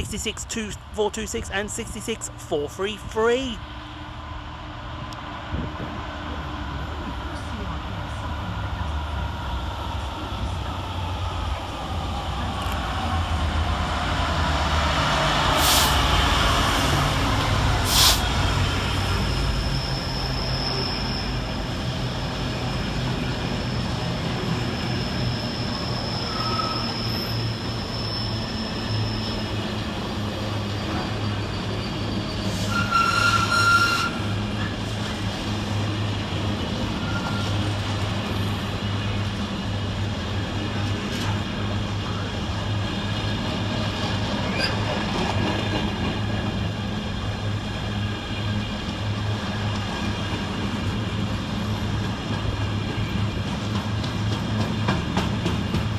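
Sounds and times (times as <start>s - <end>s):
diesel locomotive engine drone: 0.0s - 55.9s
high wheel squeal: 19.4s - 21.7s, 24.6s - 34.3s, 36.9s - 37.8s
rumble of passing wagons: 34.2s - 55.9s.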